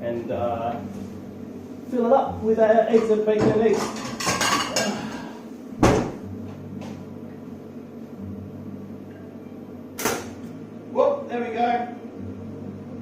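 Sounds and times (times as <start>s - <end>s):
steady low hum: 0.0s - 13.0s
plates and cupboard clattering: 2.9s - 6.1s.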